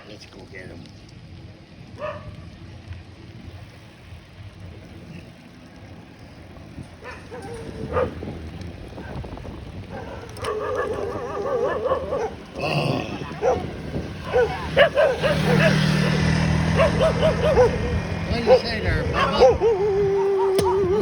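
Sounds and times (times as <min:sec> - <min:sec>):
dogs barking: 0:01.9 - 0:02.5, 0:07.0 - 0:21.0
dog whining: 0:16.8 - 0:21.0.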